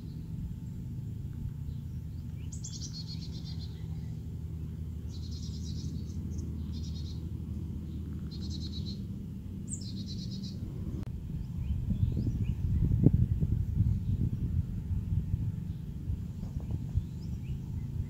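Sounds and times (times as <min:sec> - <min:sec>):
songbird trilling: 0:00.0 - 0:18.0
steady low rumble: 0:00.0 - 0:18.0.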